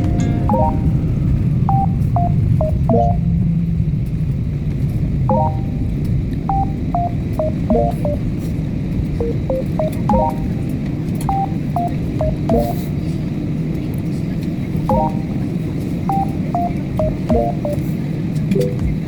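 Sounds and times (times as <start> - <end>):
airliner cabin drone: 0.0 - 19.0
tune of short high notes: 0.1 - 1.0, 5.3 - 8.2, 9.2 - 10.7, 11.3 - 12.8, 14.9 - 15.4, 16.1 - 17.8.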